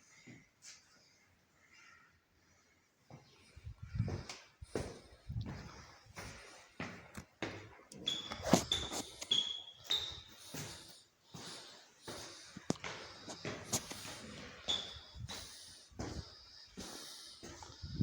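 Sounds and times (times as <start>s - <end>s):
short high squeaks: 8.0s - 10.3s.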